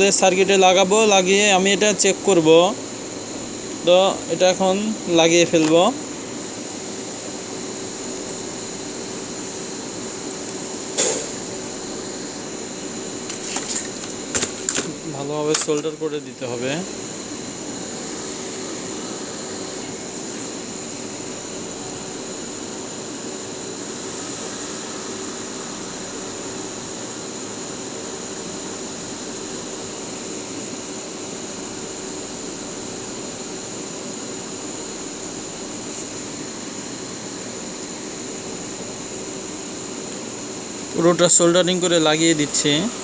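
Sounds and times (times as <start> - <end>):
electric fan whirring: 0.0 - 43.0.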